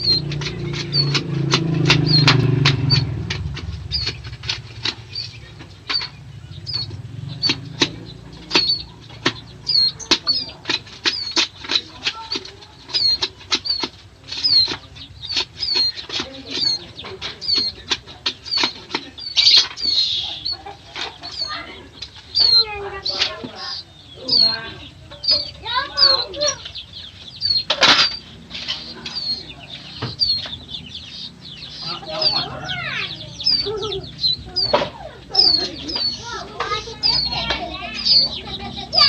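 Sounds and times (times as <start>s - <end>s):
sharp clicks: 0.0s - 20.6s
bird chirping: 0.0s - 39.0s.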